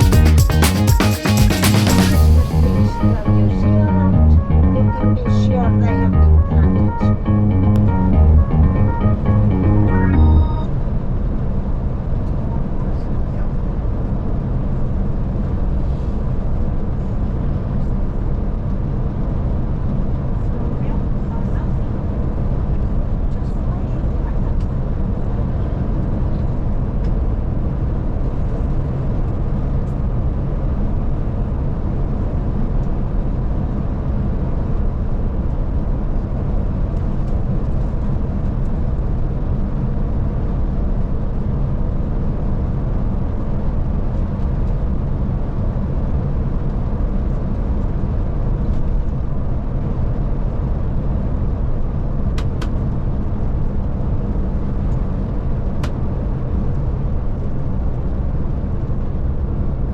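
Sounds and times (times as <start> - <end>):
coach engine and road drone: 1.6 - 15.6.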